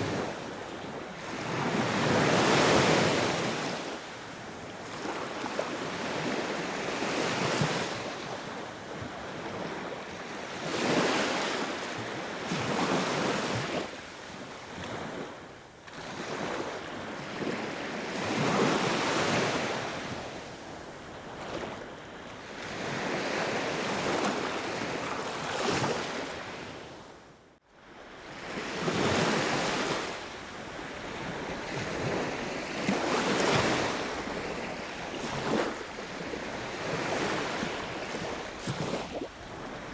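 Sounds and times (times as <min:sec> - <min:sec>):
sea waves breaking: 0:28.8 - 0:39.9.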